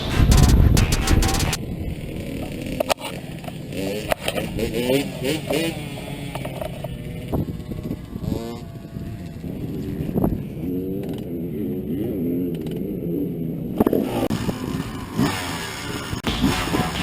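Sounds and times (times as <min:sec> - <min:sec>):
sharp knocks: 0:00.0 - 0:01.6
dirt bike engine revving: 0:00.0 - 0:17.0.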